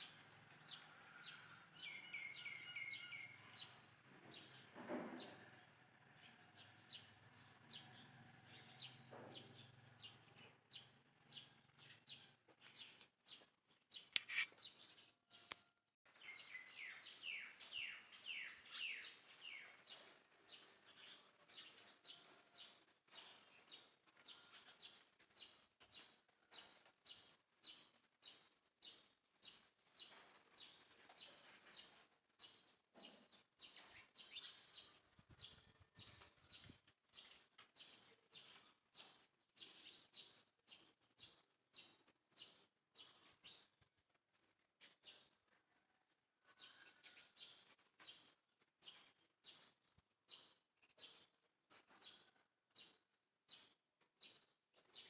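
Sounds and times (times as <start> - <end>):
faint high bird chirps: 0.8 - 3.8, 14.1 - 20.1.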